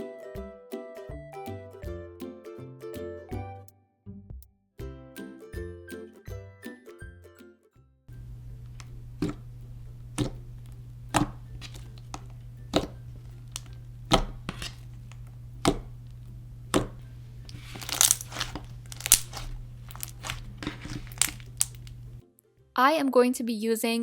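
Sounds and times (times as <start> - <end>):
steady low hum: 8.1 - 22.2
slime clicking and popping: 10.2 - 14.3, 15.0 - 16.0, 16.7 - 17.0, 17.6 - 22.0.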